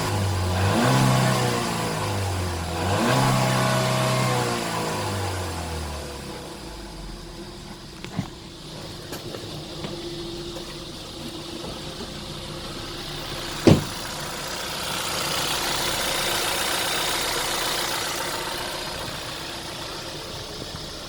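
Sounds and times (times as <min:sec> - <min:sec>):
car engine idling: 0:00.0 - 0:21.0
sharp thump: 0:13.6 - 0:14.1.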